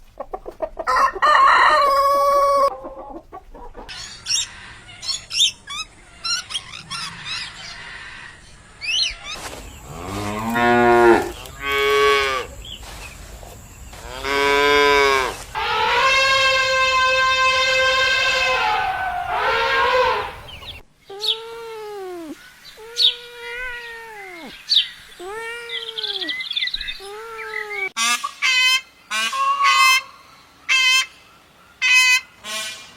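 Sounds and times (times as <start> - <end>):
cow mooing: 9.8 - 12.5, 14.1 - 20.7
arched rising-then-falling animal calls: 15.6 - 20.8
short harsh animal calls: 15.6 - 21.4.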